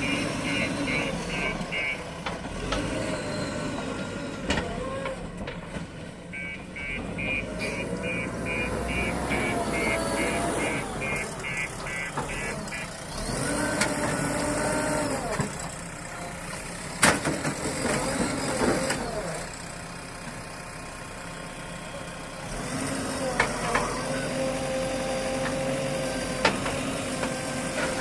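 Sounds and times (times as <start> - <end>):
reversing alarm beeping: 0.0 - 2.0, 6.3 - 12.9
diesel engine working: 0.0 - 28.0.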